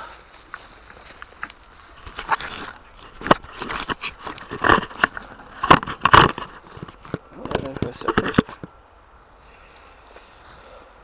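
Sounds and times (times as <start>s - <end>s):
rustling: 0.0s - 8.8s.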